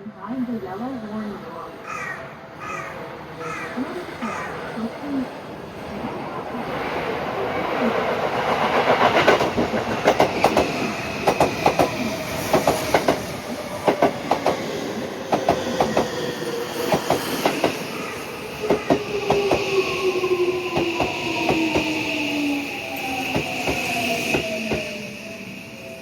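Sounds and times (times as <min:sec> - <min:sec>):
train wheels clattering over rail joints: 0:08.6 - 0:14.7, 0:15.3 - 0:17.8
train whine falling in pitch: 0:16.8 - 0:26.0.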